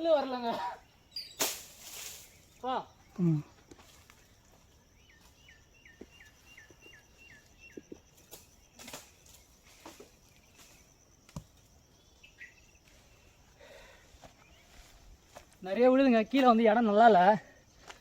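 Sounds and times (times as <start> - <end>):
high insect trill: 0.0 - 18.0.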